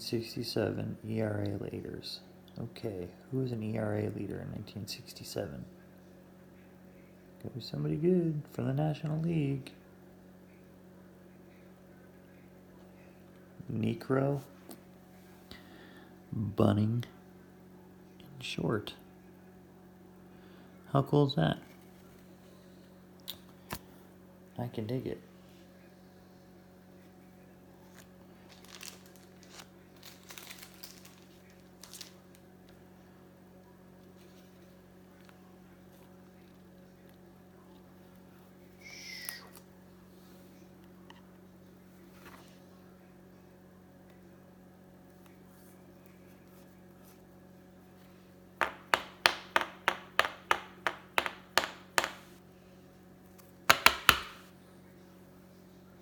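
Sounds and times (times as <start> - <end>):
wrapper crinkling and tearing: 28.0 - 32.4.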